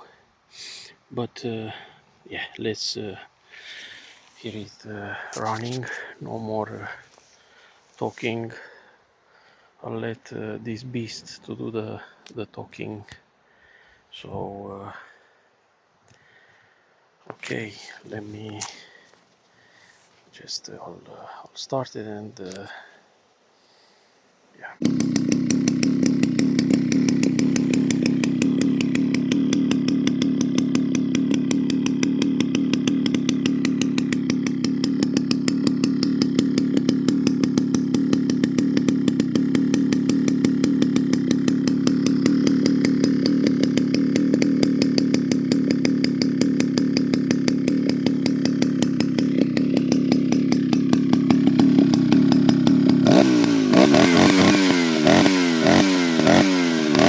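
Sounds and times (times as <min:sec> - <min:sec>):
chainsaw idling and revving: 0:03.5 - 0:09.0, 0:24.6 - 0:57.0.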